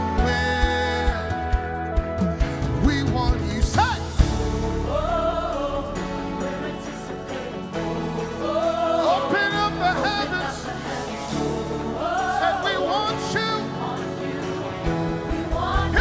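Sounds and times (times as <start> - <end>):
sustained instrumental accompaniment: 0.0 - 16.0.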